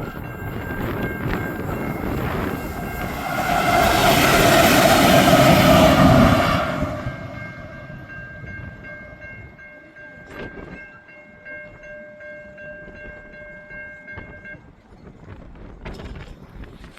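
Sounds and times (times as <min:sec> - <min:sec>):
diesel locomotives moving away: 0:00.0 - 0:10.7
level crossing warning bells: 0:00.0 - 0:14.6.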